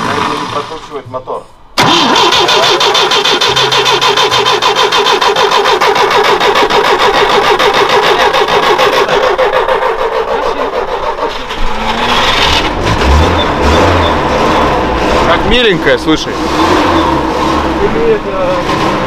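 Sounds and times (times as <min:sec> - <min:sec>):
starter motor cranking engine: 0:00.0 - 0:00.9, 0:01.8 - 0:17.8.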